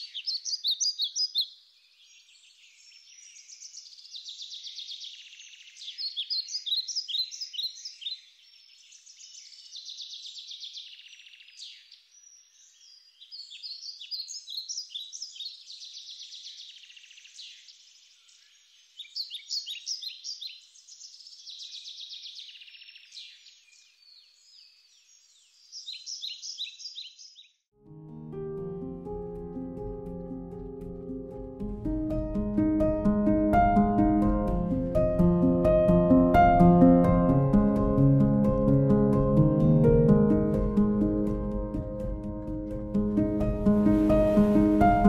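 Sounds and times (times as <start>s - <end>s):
songbird trilling and chirping: 0.0s - 27.6s.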